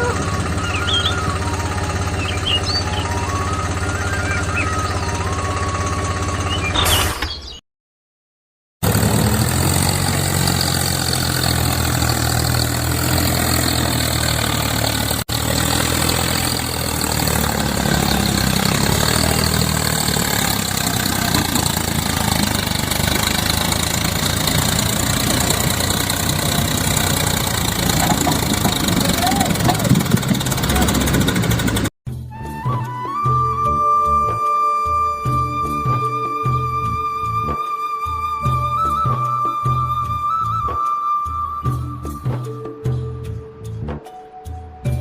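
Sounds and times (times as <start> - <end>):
tractor engine running: 0.0 - 6.9, 8.8 - 32.2.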